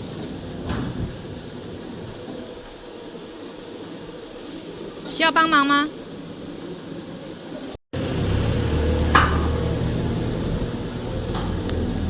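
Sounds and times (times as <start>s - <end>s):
machinery drone: 8.0s - 12.0s.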